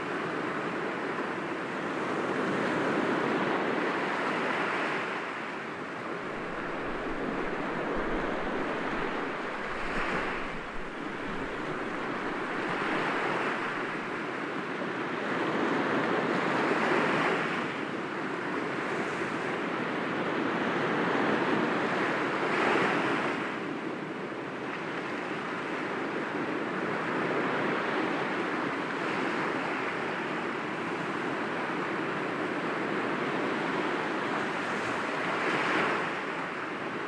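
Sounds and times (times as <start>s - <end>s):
wind on microphone: 1.8s - 17.8s
waves breaking against rocks: 6.2s - 14.0s.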